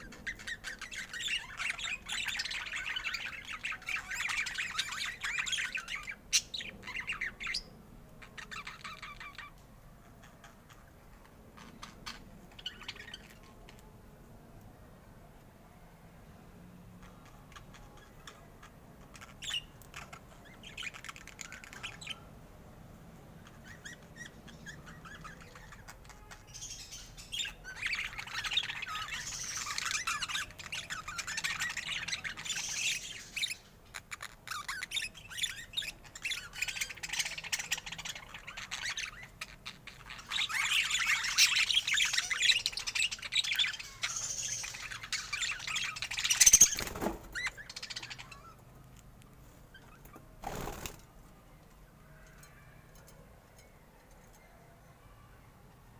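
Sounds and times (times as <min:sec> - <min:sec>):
budgerigars chattering and chirping: 0:00.0 - 0:13.9, 0:17.0 - 0:22.3, 0:23.4 - 0:48.8.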